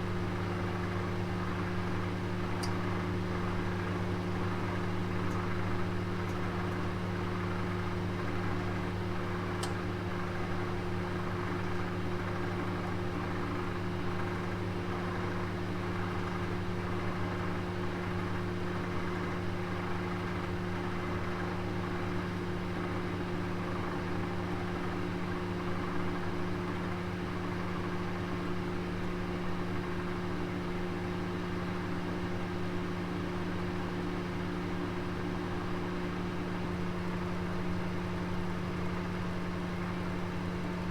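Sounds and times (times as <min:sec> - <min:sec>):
oven humming: 0:00.1 - 0:14.8.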